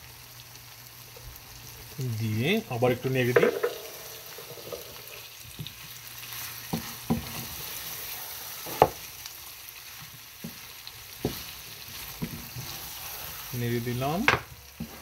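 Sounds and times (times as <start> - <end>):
meat sizzling in oil: 0.0 - 15.0
wooden spatula scraping a pan: 3.3 - 9.1, 9.8 - 15.0.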